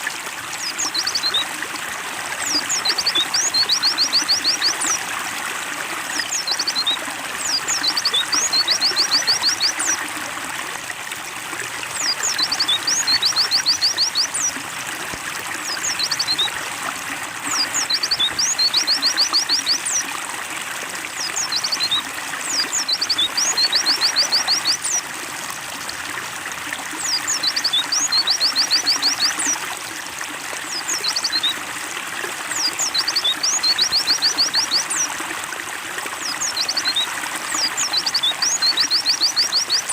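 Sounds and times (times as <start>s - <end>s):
water trickling: 0.0s - 39.9s
bird singing high chirps: 2.4s - 5.0s, 6.1s - 10.0s, 12.0s - 14.5s, 15.6s - 16.5s, 17.5s - 20.0s, 21.2s - 25.0s, 27.0s - 29.6s, 32.5s - 35.1s, 36.2s - 39.9s.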